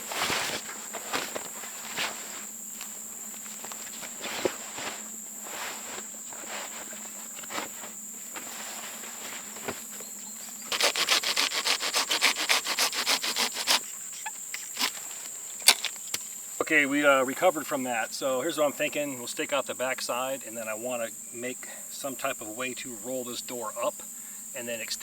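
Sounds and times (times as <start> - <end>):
rustles and clicks of handling: 0.0 - 10.8, 14.1 - 16.4
rubbing and rustling: 0.0 - 16.7
insects buzzing: 0.0 - 25.0.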